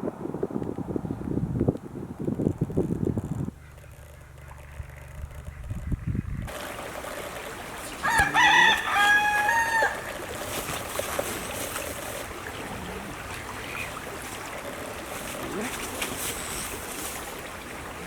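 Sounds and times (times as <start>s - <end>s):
rooster crowing: 8.0s - 10.1s.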